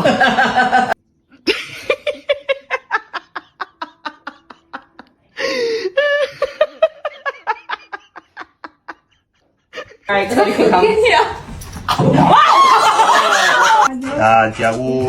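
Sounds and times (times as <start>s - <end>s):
person laughing hard: 0.0s - 9.2s, 12.2s - 13.9s.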